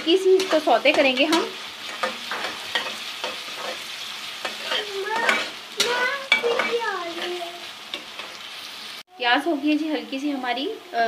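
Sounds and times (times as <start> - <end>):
onions sizzling in a pan: 0.0 - 11.0
spoon scraping and clicking pan: 0.4 - 8.4.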